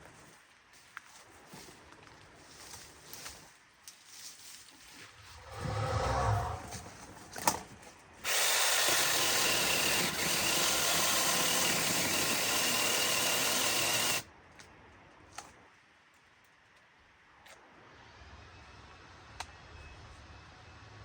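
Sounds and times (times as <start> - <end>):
low rumble: 5.2 - 7.4
power tool running: 8.2 - 14.2.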